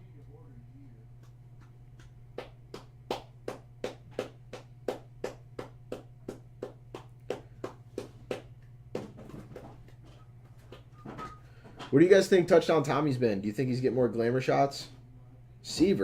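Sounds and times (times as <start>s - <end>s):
low electrical hum: 0.0s - 16.0s
sharp hand taps: 1.6s - 9.8s.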